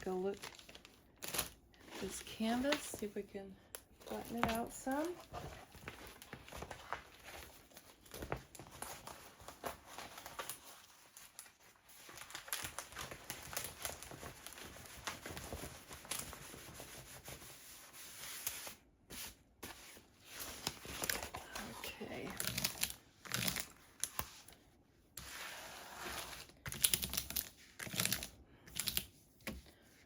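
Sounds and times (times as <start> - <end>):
plastic film crinkling: 0.1 - 3.0, 4.2 - 16.5.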